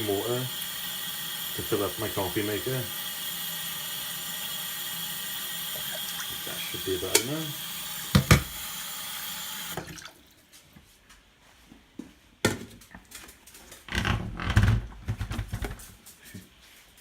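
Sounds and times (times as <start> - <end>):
tap running water into container: 0.0 - 10.2.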